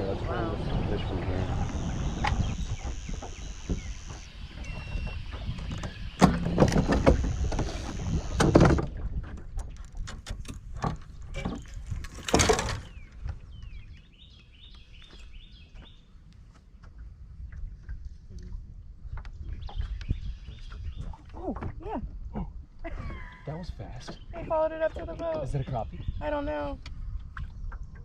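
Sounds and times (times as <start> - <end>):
fishing gear clicking and rustling: 9.5 - 13.0.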